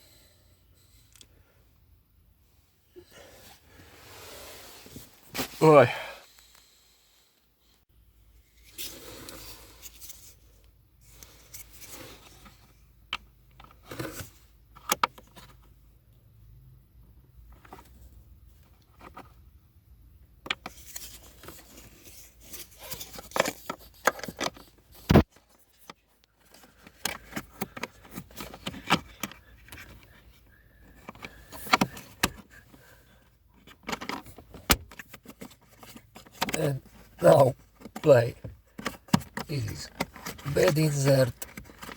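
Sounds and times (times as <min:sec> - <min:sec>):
plastic parts clicking and tapping: 0:22.8 - 0:30.2, 0:30.8 - 0:32.7, 0:33.5 - 0:41.9.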